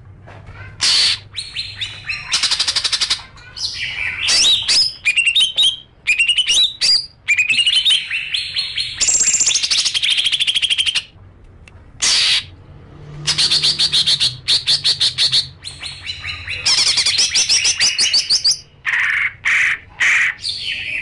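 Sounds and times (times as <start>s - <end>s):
songbird trills and chirps: 1.3s - 11.1s.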